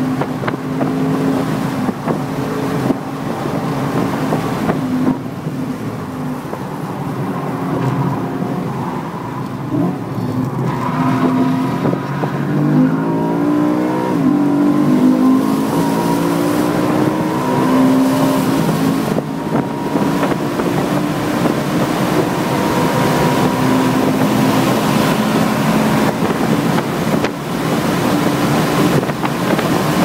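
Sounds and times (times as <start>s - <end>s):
racing car engine revving: 6.7s - 30.0s.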